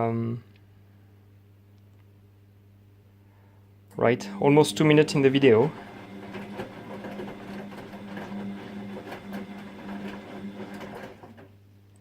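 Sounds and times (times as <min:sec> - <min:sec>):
washing machine motor hum: 0:04.1 - 0:11.7
washing machine drum clatter: 0:05.5 - 0:11.5.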